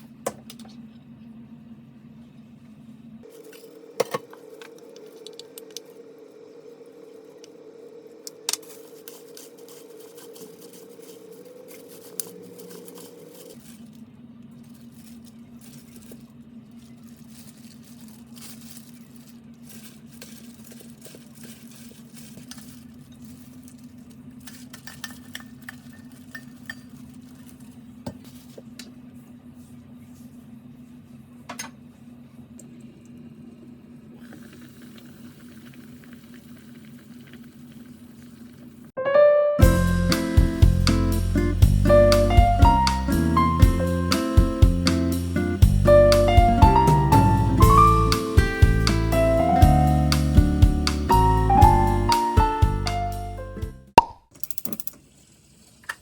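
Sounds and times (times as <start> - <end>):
background hum: 0.0 - 38.9
dishes and utensils clinking: 24.5 - 27.1.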